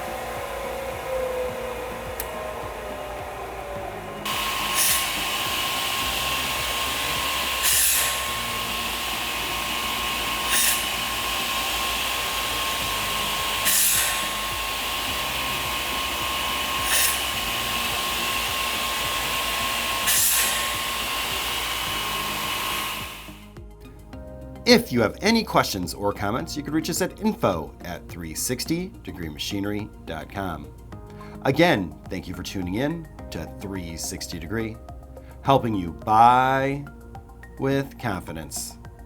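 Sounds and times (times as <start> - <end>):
loud saw bursts: 0.0 - 23.6
saw machine whine: 0.0 - 23.7.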